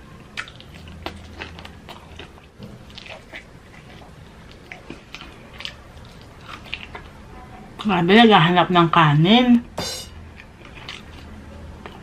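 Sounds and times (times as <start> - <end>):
chewing fried chicken: 0.0 - 7.3, 10.3 - 12.0.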